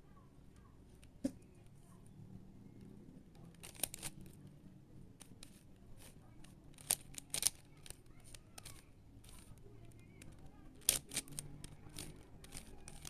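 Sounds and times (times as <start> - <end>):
plastic clicks of cube turning: 3.3 - 4.4, 5.2 - 13.0.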